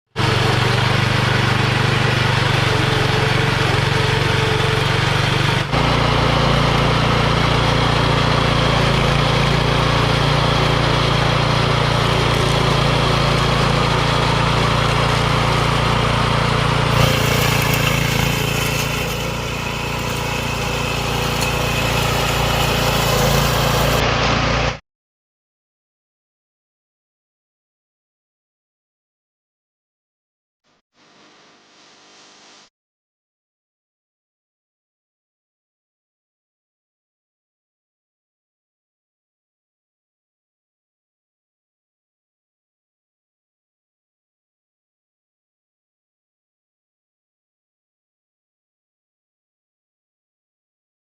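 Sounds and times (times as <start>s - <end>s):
lawn mower running: 0.2s - 24.8s.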